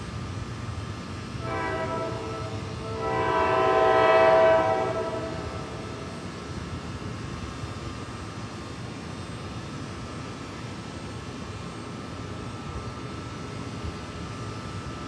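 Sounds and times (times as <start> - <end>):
locomotive horn blasts: 1.4 - 6.2.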